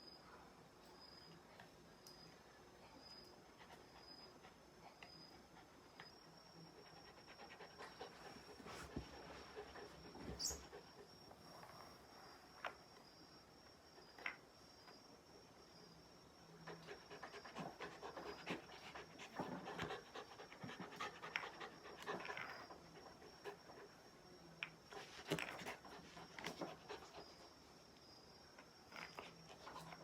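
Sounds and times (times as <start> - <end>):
dog panting: 6.8 - 11.1, 16.6 - 24.0, 24.9 - 27.6.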